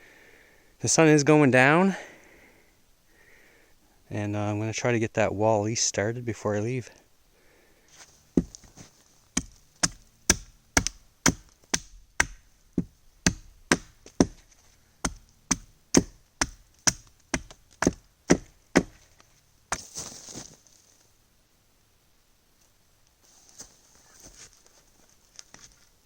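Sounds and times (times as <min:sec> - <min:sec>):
chopping wood: 0:08.4 - 0:14.4, 0:15.0 - 0:19.1.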